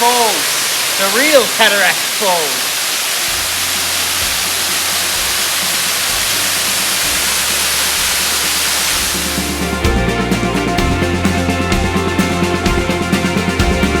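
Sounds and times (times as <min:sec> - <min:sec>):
waterfall roaring: 0:00.0 - 0:09.9.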